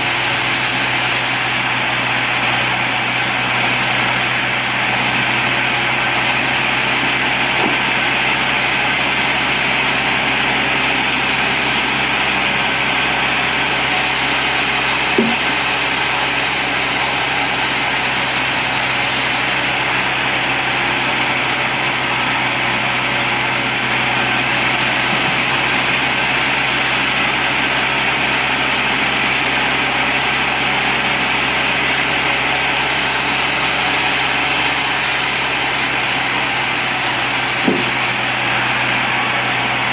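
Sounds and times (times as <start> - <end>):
bandsaw running: 0.0 - 39.9
short knock: 15.2 - 15.5, 37.6 - 38.0.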